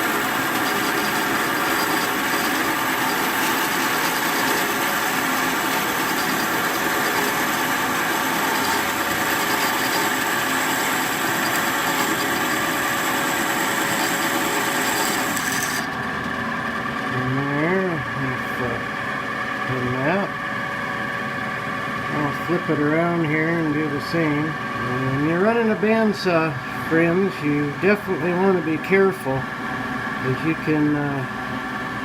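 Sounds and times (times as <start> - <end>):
bandsaw cutting wood: 0.0 - 15.9.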